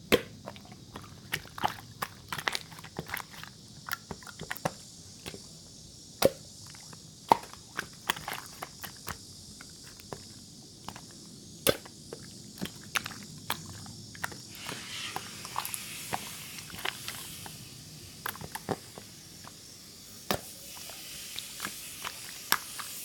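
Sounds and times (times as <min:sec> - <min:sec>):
faint hiss: 0:14.0 - 0:23.0.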